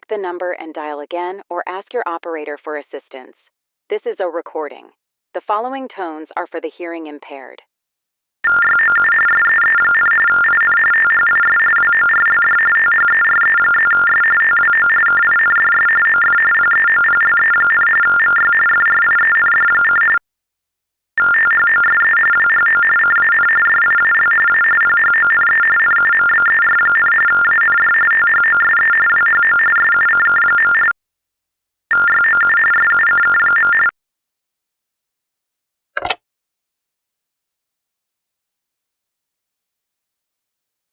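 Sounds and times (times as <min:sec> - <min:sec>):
brief click: 0:36.0 - 0:36.2.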